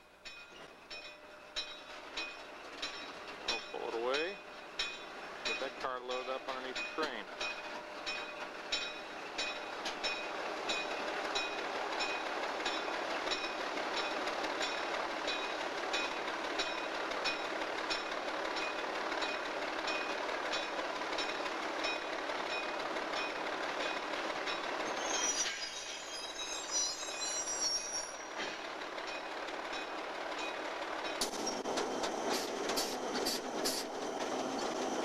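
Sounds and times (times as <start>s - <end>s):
train rolling on rails: 0.0s - 35.0s
high-pitched wheel squeal: 24.9s - 28.3s.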